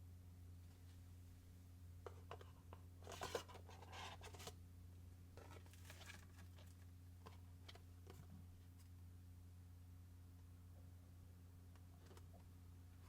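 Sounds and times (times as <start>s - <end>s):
packaging rustling: 5.4s - 6.8s.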